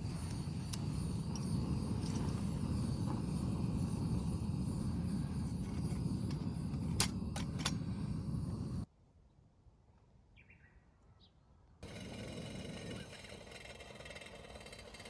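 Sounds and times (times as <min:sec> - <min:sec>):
low rumbling noise: 0:00.0 - 0:08.9
faint bird chirps: 0:10.3 - 0:11.5.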